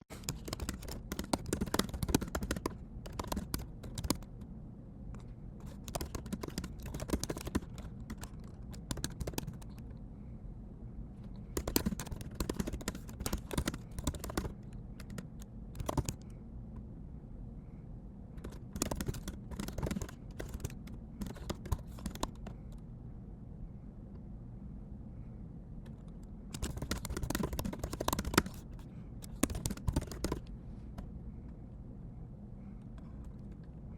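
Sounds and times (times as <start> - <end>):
steady low hum: 0.0 - 33.9
keyboard typing clicks: 0.2 - 4.5, 5.2 - 10.0, 11.4 - 16.4, 18.4 - 22.8, 25.8 - 31.1.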